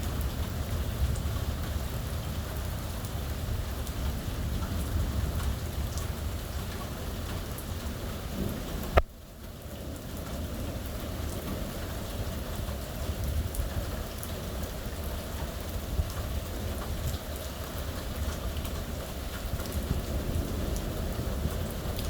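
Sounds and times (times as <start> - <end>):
low thunder rumble: 0.0 - 22.0
rain drops ticking on surface: 0.0 - 22.0.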